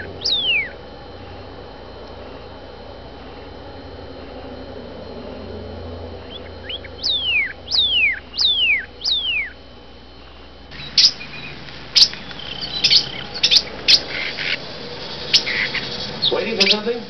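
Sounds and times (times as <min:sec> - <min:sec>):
short rising bird notes: 0:00.0 - 0:00.8, 0:04.2 - 0:09.6, 0:10.7 - 0:17.0
sharp clicks: 0:10.7 - 0:16.9
bird whistles sliding down: 0:10.8 - 0:16.9.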